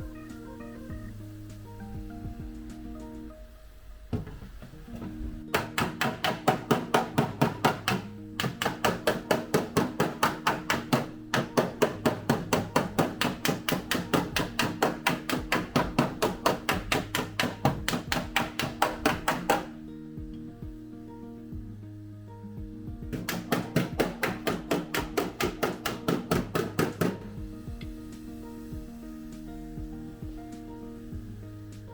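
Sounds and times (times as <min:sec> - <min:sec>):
background music: 0:00.0 - 0:31.9
hammer striking steel panel: 0:05.5 - 0:19.8, 0:23.1 - 0:27.4.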